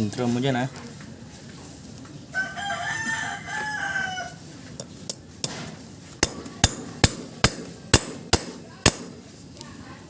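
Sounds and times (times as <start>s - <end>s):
rooster crowing: 2.3s - 4.5s
hammer tapping on metal: 6.2s - 9.2s.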